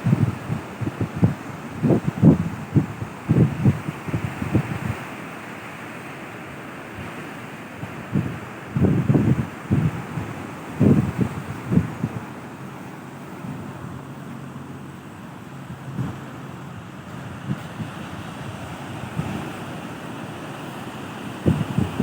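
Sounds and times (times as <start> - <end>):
wind on microphone: 0.0 - 5.3, 7.0 - 22.0
sea waves washing on beach: 0.0 - 22.0.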